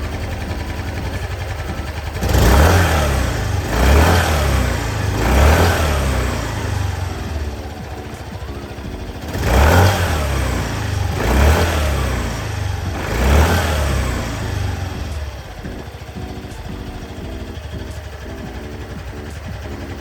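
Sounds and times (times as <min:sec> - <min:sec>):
scooter engine idling and revving: 0:00.0 - 0:20.0.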